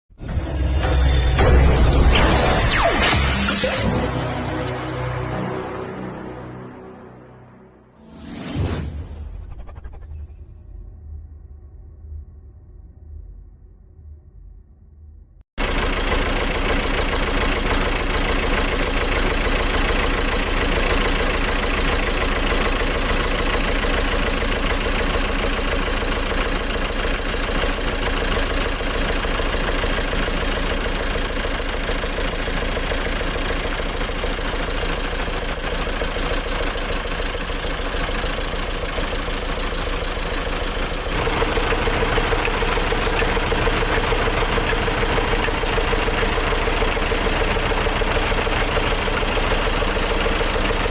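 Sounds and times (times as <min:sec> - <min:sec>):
diesel engine running steadily: 0:15.6 - 0:50.9.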